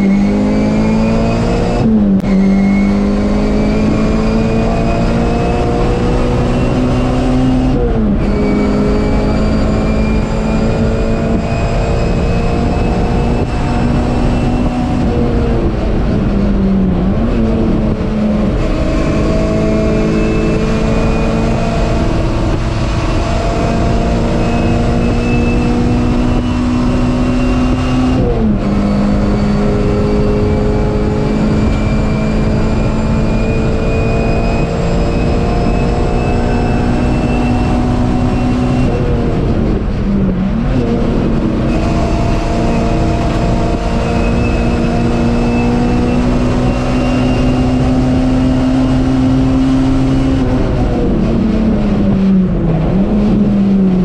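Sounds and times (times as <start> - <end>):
race car engine revving: 0.0 - 54.0
tyre and road noise: 0.0 - 54.0.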